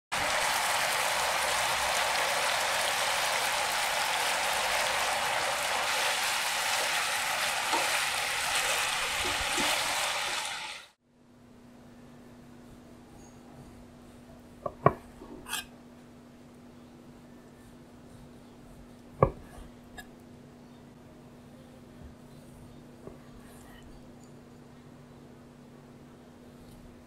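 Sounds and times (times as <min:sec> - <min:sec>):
meat sizzling in a pan: 0:00.1 - 0:11.0.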